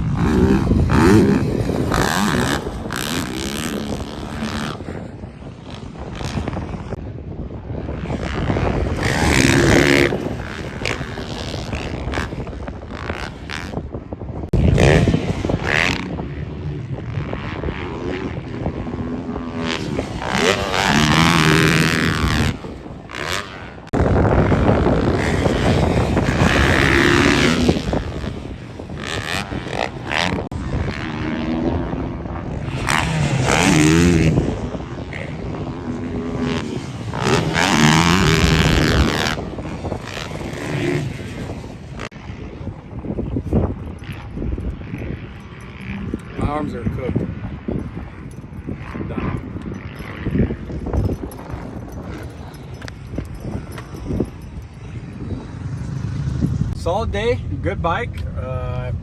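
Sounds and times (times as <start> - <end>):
motocross bike engine revving: 0.0 - 6.9, 8.1 - 13.8, 14.6 - 42.2.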